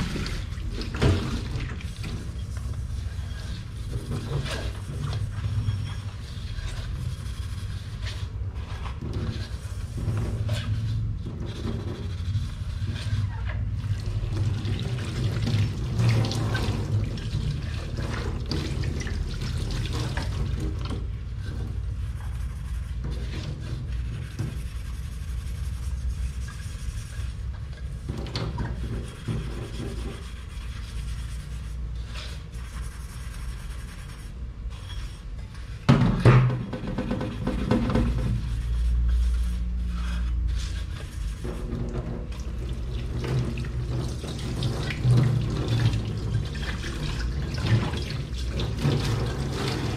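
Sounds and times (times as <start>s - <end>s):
water running from tap into sink: 14.0s - 20.9s, 42.6s - 49.9s.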